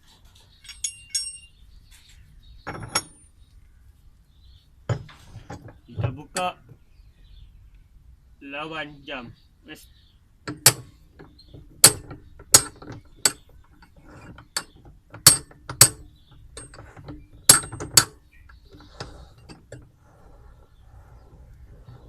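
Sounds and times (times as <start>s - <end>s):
metal tools clanking: 0.0s - 3.4s, 4.9s - 6.8s, 10.5s - 20.0s.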